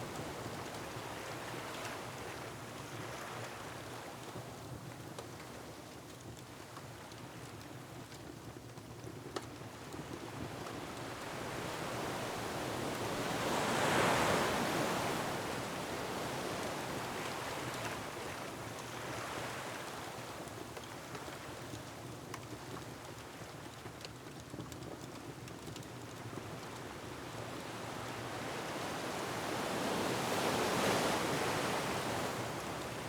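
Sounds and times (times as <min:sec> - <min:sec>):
faint wood fire crackles: 0:00.0 - 0:33.0
surf washing against rocks: 0:11.5 - 0:17.7.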